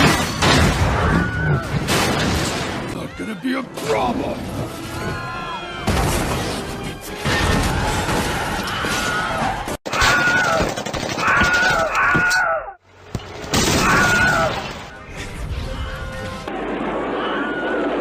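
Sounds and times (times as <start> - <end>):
film music: 2.7 - 9.4.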